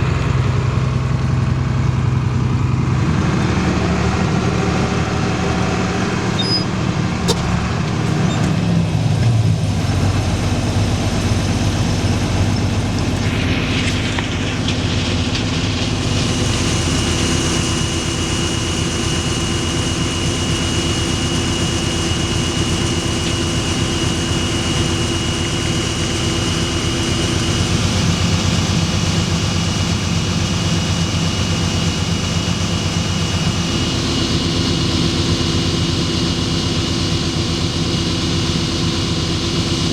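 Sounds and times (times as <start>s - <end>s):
tractor diesel engine under load: 0.0s - 39.9s
steady high whine: 0.8s - 39.4s.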